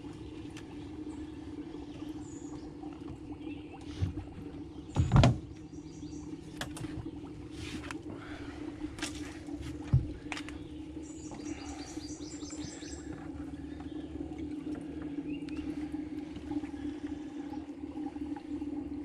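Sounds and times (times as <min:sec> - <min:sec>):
steady low hum: 0:00.0 - 0:19.0
small birds chirping: 0:01.1 - 0:07.3, 0:10.2 - 0:16.1.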